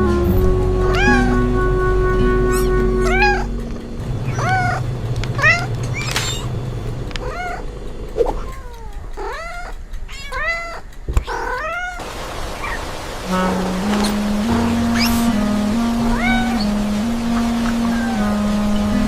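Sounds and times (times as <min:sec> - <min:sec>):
cats meowing: 0:00.7 - 0:01.4, 0:02.5 - 0:12.0, 0:16.0 - 0:16.8, 0:17.7 - 0:18.4.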